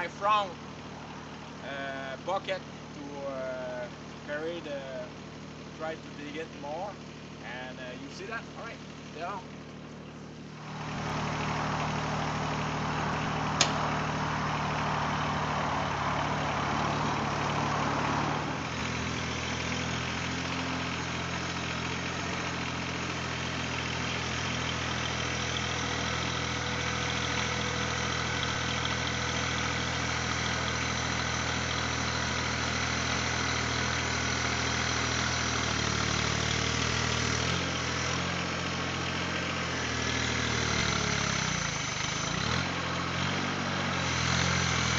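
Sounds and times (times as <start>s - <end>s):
tractor diesel engine running: 0.0s - 44.9s
sharp click: 13.6s - 13.9s.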